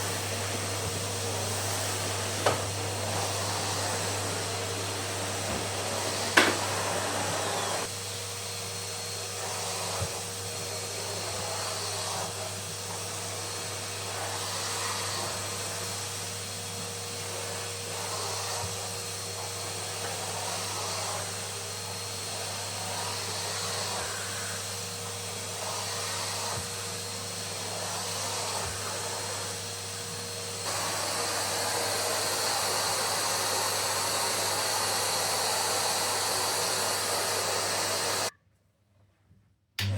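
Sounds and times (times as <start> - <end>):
vacuum cleaner running: 0.0 - 38.3.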